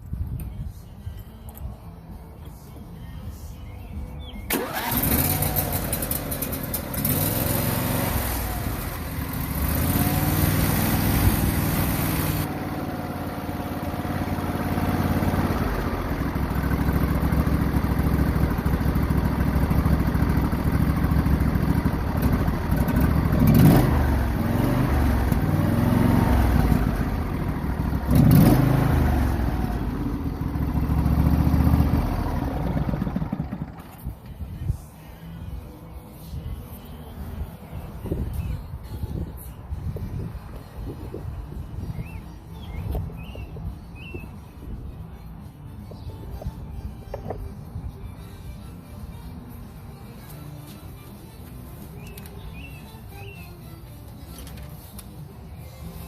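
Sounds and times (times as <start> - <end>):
lawn tractor engine running: 4.5 - 34.1.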